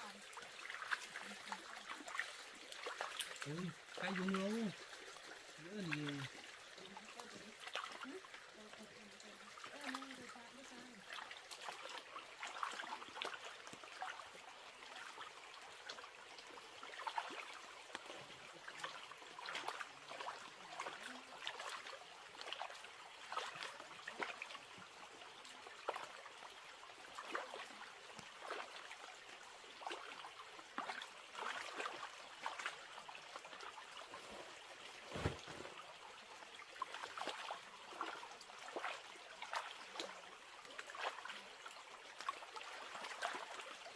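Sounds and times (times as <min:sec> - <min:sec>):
water trickling and splashing: 0:00.0 - 0:43.9.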